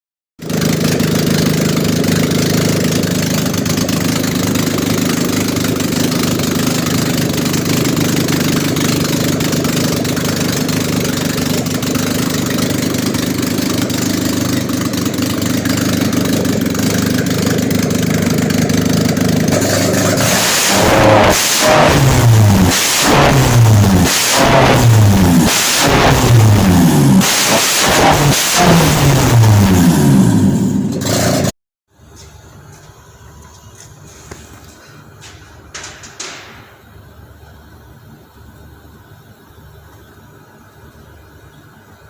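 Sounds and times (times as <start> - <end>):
car engine idling: 0.4 - 27.2.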